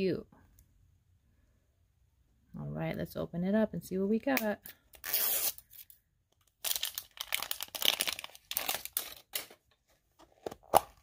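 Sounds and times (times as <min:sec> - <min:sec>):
wrapper crinkling and tearing: 0:05.0 - 0:09.6.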